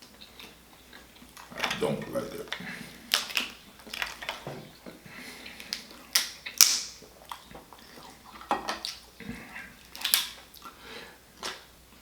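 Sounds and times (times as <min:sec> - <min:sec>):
lobster shell cracking: 0:02.5 - 0:04.4, 0:05.6 - 0:07.0, 0:09.9 - 0:10.4.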